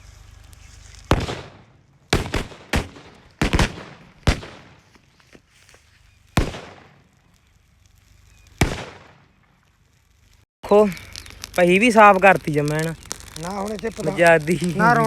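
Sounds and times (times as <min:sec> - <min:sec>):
firecrackers banging: 0:00.4 - 0:05.0, 0:06.3 - 0:09.9, 0:10.7 - 0:15.0.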